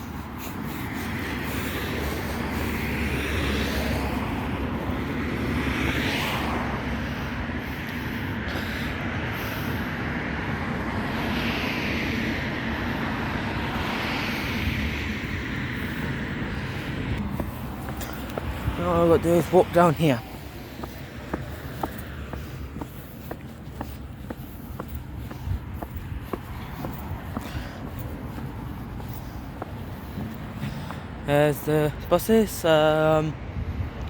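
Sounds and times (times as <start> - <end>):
vehicle engine rumble: 12.2 - 32.2.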